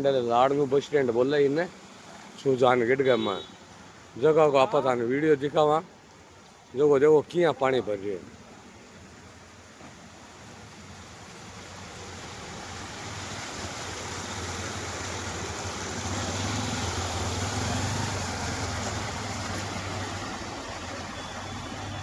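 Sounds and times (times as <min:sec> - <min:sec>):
water swishing: 0:09.3 - 0:22.0
vehicle engine hum: 0:10.5 - 0:22.0.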